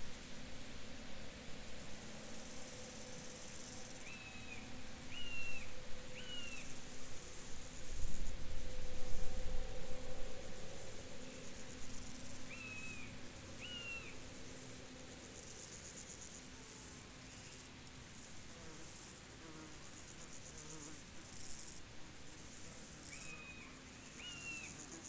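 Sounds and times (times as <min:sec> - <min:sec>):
crickets trilling: 0:02.4 - 0:16.4.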